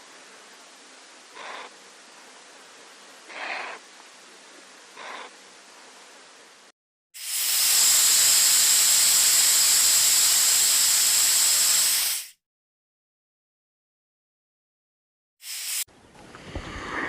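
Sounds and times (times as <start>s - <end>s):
snake hissing: 1.3s - 1.8s, 3.3s - 3.8s, 5.0s - 5.4s, 7.2s - 12.4s.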